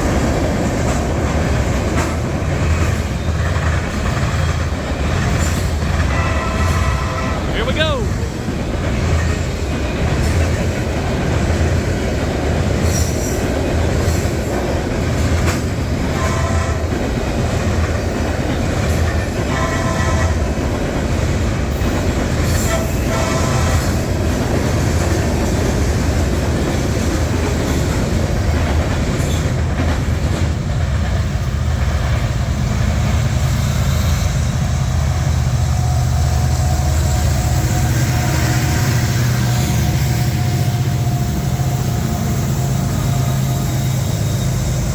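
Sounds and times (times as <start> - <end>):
train wheels rumbling on rails: 0.0 - 44.9
high-pitched wheel squeals: 36.3 - 44.9.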